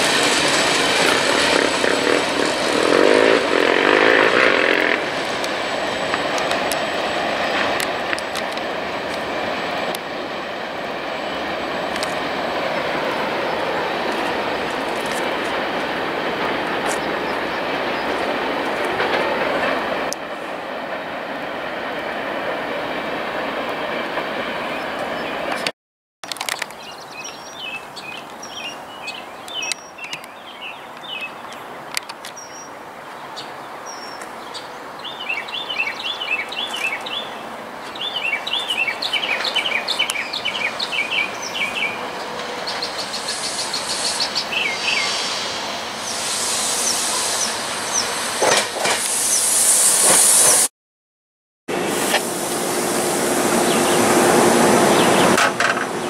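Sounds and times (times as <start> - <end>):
electric train approaching hiss: 0.0 - 25.6, 32.4 - 50.7, 51.7 - 56.0
freight train rumbling: 0.0 - 25.7, 26.4 - 50.7, 51.7 - 56.0
songbirds chirping: 26.6 - 45.2.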